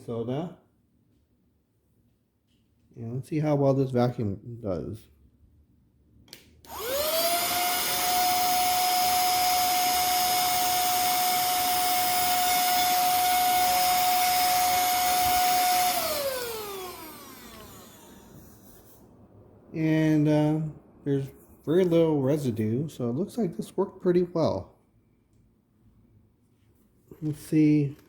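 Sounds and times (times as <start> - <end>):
handheld vacuum cleaner motor whine: 6.6 - 18.6.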